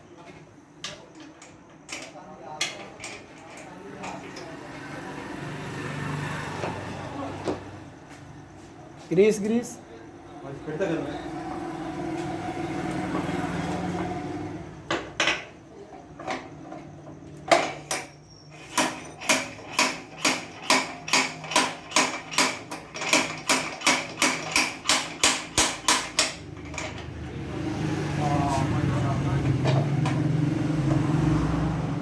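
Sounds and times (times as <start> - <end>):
hammer striking: 18.8 - 26.5.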